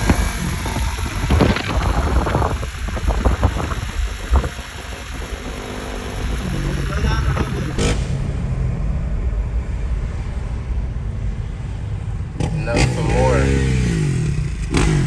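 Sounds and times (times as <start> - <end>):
wind buffeting microphone: 0.0 - 8.5
motor vehicle low rumble: 0.0 - 15.0.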